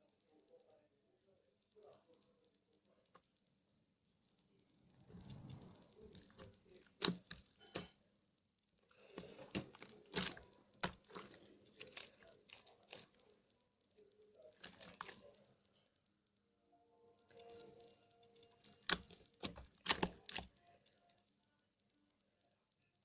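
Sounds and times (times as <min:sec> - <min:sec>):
slime squeezed sticky clicks: 0:09.0 - 0:13.1, 0:18.6 - 0:20.5.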